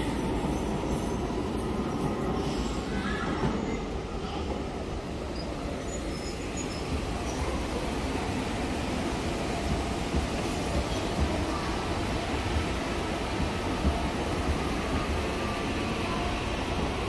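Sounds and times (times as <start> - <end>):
electric train rumbling: 0.0 - 17.0
faint wheel squeal: 5.4 - 7.4.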